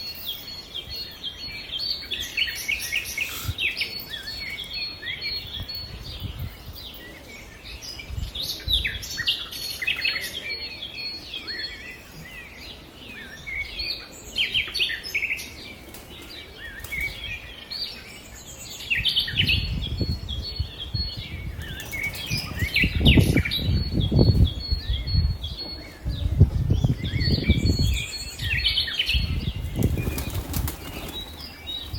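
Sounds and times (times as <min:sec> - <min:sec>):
small birds chirping: 0:00.0 - 0:31.9
pigeon wings flapping: 0:29.8 - 0:31.4.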